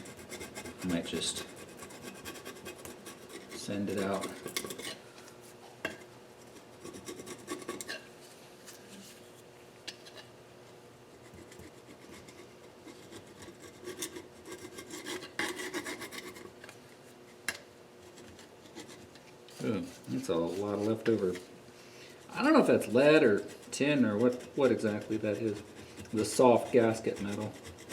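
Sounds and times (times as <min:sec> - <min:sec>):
tool scraping metal: 0:00.0 - 0:05.0, 0:22.3 - 0:27.9.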